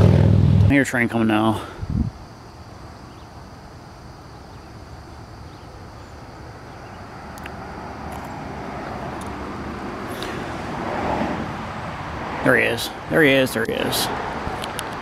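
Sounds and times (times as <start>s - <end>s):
approaching train rumble: 7.1s - 14.6s.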